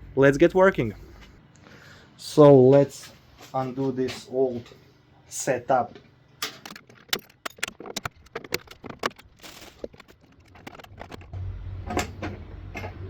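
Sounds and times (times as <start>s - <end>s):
steady low hum: 0.0s - 13.0s
metal parts clicking and clinking: 6.4s - 13.0s.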